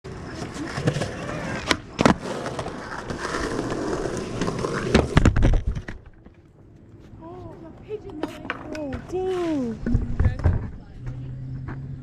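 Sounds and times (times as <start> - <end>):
skateboard wheels rolling: 0.1 - 12.0
skateboard clacks and thumps: 0.7 - 6.4, 8.1 - 11.1.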